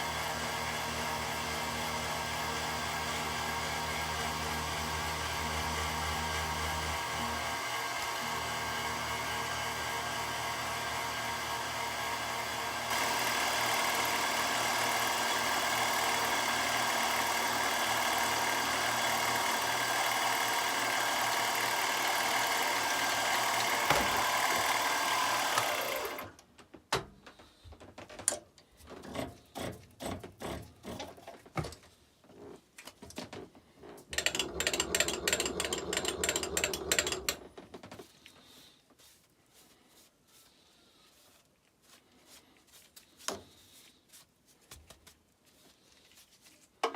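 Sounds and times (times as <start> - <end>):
machine tool running: 0.0 - 26.3, 34.2 - 37.4.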